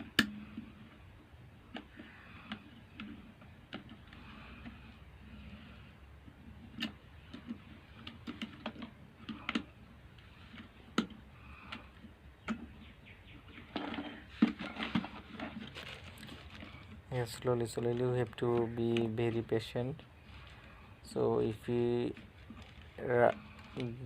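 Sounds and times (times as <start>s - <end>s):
plastic kettle parts clicking: 1.6s - 5.6s, 6.3s - 12.8s.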